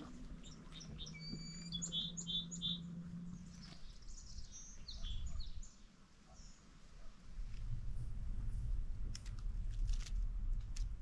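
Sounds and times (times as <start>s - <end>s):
songbirds chirping: 0.0s - 7.5s
low steady hum: 0.0s - 11.0s.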